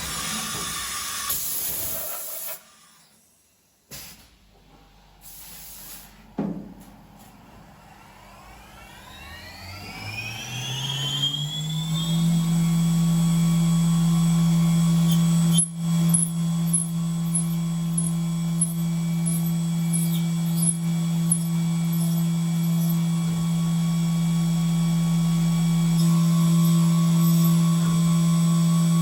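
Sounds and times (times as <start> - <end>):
mill spindle whine: 7.6 - 29.0.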